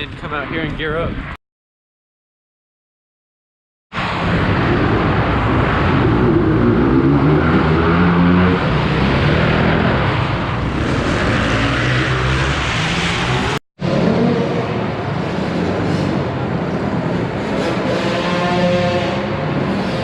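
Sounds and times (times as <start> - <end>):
dirt bike engines revving: 4.6 - 16.4.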